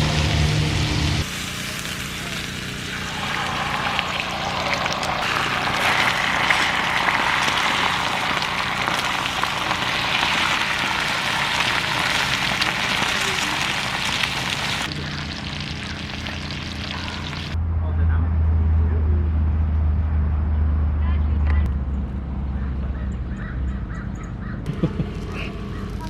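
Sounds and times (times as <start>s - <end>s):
food sizzling in a pan: 0.0s - 17.6s, 24.7s - 26.0s
dull low hum: 14.0s - 26.0s.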